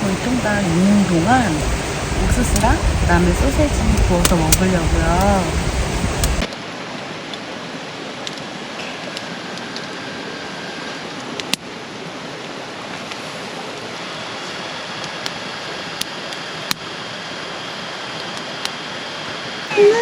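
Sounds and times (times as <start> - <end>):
sharp clicks: 6.2 - 6.5
stream flowing over rocks: 6.4 - 19.4.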